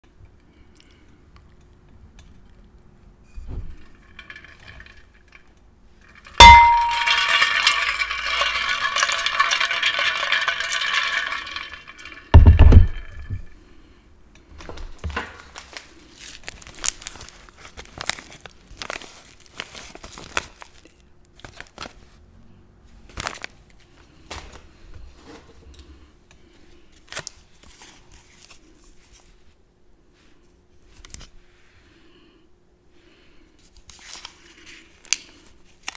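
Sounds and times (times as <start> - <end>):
heavy thump: 12.4 - 13.5.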